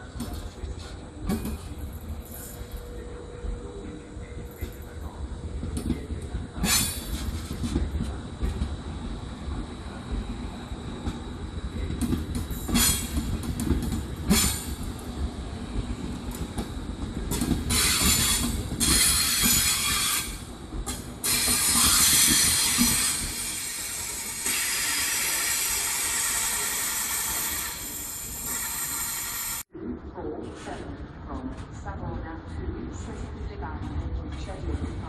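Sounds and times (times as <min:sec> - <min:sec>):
wheels hissing and squealing on rails: 0:12.5 - 0:13.5, 0:17.4 - 0:29.6.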